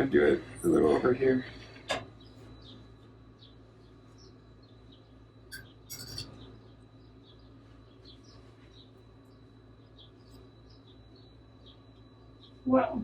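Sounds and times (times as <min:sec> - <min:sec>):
cutlery clinking and scraping: 0:05.5 - 0:06.4
faint short bird chirps: 0:05.5 - 0:06.6.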